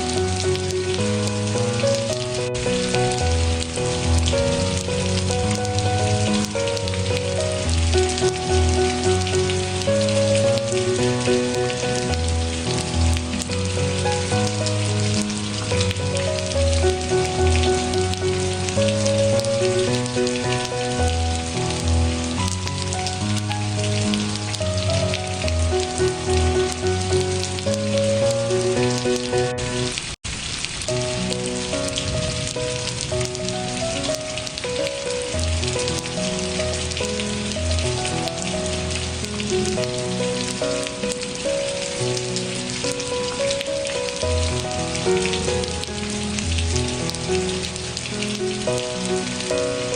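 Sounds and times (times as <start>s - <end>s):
melody of held notes: 0.0s - 30.0s
steady rain hiss: 0.0s - 49.9s.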